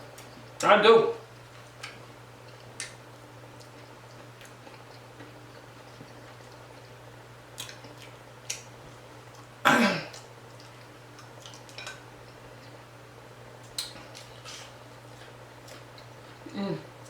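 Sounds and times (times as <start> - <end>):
chewing clicks: 1.7 - 3.0, 7.6 - 8.7
person clearing throat: 9.7 - 10.2, 16.5 - 16.9.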